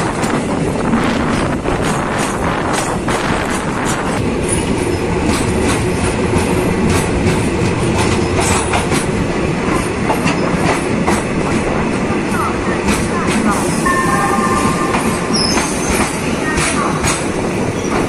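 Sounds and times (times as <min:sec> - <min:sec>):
wheels clacking over rail joints: 0:00.0 - 0:11.6
train coaches rumbling past: 0:00.0 - 0:18.0.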